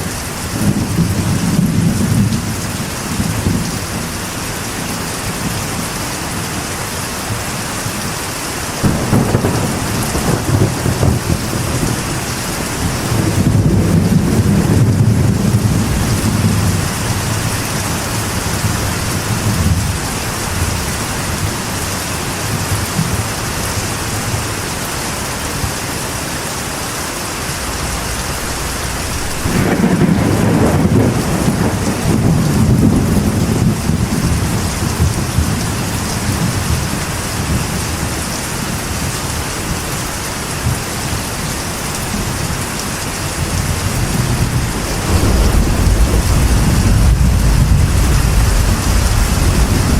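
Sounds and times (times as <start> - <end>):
rain on a metal roof: 0.0 - 49.9
rolling thunder: 8.8 - 21.8, 27.0 - 38.3, 43.3 - 49.9.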